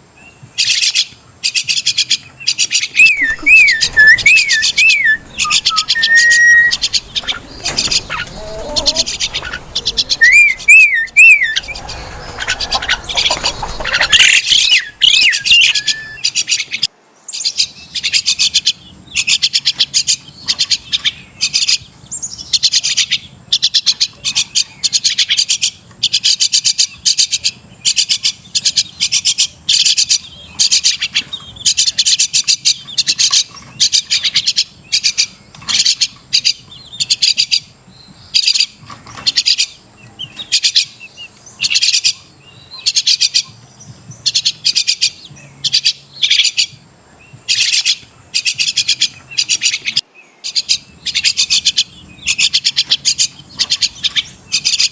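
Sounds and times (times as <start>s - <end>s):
mynas chattering: 3.0s - 16.0s
wavering whistle: 3.0s - 16.3s.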